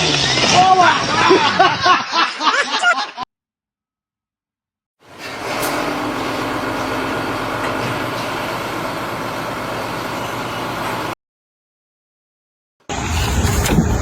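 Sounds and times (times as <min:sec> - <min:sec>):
machine running: 0:05.1 - 0:11.1, 0:12.9 - 0:14.0.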